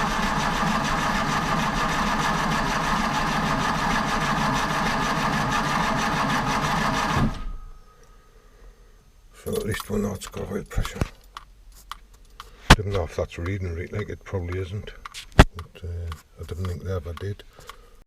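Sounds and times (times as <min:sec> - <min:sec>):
engine cranking on starter motor: 0:00.0 - 0:07.6.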